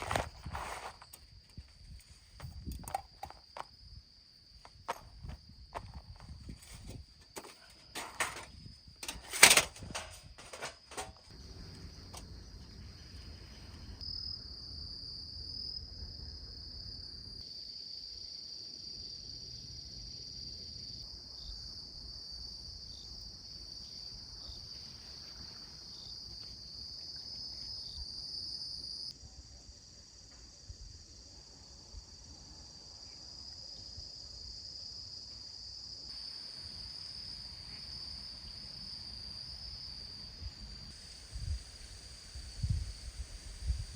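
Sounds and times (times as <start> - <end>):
insects chirping drone: 0.0 - 43.9.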